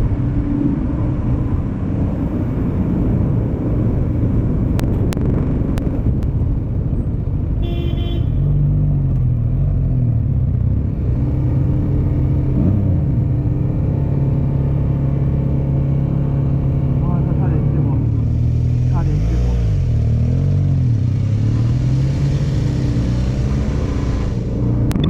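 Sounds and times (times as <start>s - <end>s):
wind noise: 0.0s - 7.8s
vehicle horn toot: 7.6s - 8.6s.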